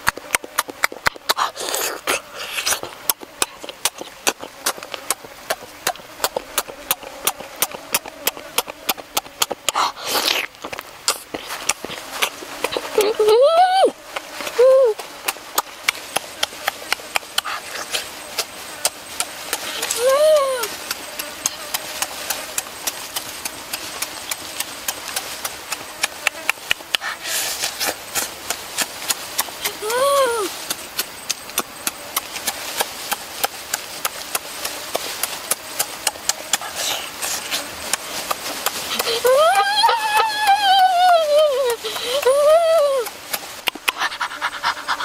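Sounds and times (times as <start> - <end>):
lip smacks and chewing: 0.0 - 13.1, 15.0 - 20.0, 20.8 - 27.3, 30.6 - 39.3, 43.0 - 45.0
person humming mm: 0.0 - 22.6, 29.4 - 30.8, 35.4 - 45.0.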